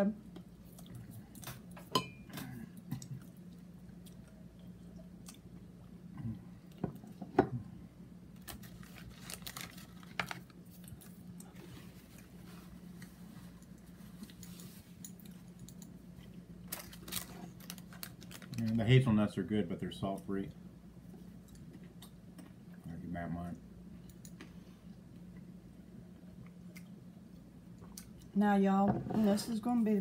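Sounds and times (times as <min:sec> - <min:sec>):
steady low hum: 0:00.0 - 0:30.0
chewing and crunching food: 0:00.3 - 0:07.2, 0:08.3 - 0:18.9, 0:21.0 - 0:23.1, 0:24.0 - 0:28.4.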